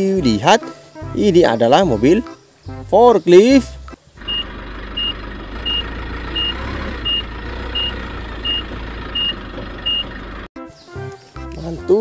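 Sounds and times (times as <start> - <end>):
forklift low rumble: 4.1 - 10.5
forklift warning beeps: 4.2 - 10.3.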